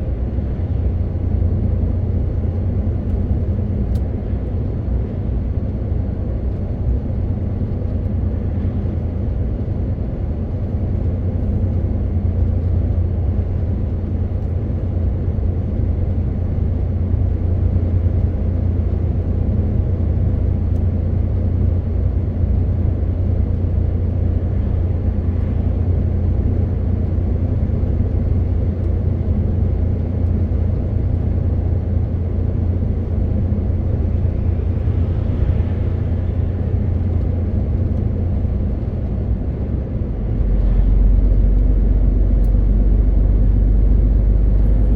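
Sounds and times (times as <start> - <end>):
diesel truck engine droning: 0.0 - 44.9
road noise: 0.0 - 44.9.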